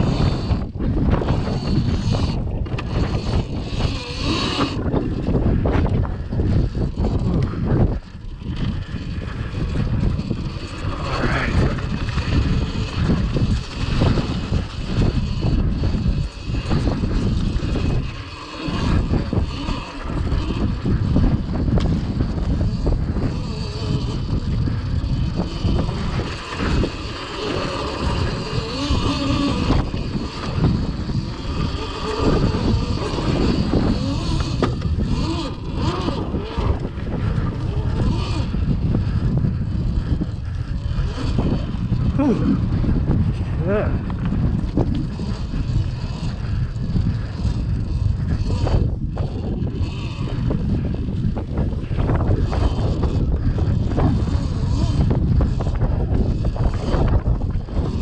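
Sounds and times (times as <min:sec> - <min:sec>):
faint electric motor whine: 0:00.0 - 0:58.0
tyre and drivetrain noise: 0:00.0 - 0:58.0
wind buffeting microphone: 0:00.0 - 0:58.0.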